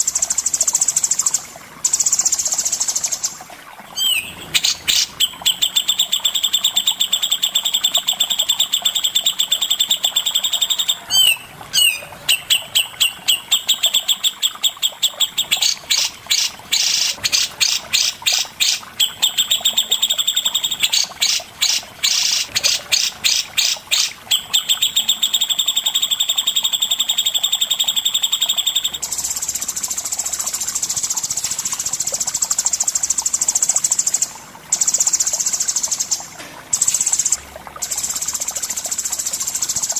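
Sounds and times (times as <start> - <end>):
songbird trilling: 4.0 - 22.7.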